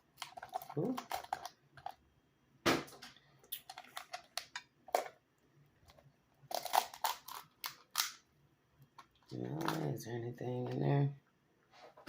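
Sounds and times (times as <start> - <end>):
crab shell cracking by hand: 0.0 - 2.0, 6.4 - 8.3.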